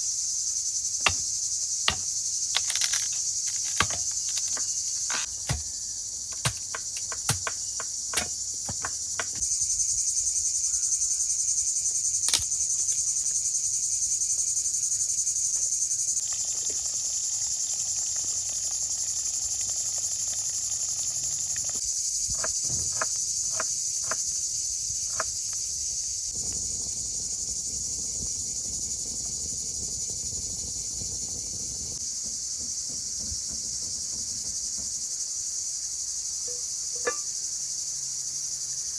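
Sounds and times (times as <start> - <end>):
insects chirring: 0.0 - 38.9
sharp clicks or knocks: 1.0 - 1.3, 1.9 - 5.7, 6.3 - 9.4.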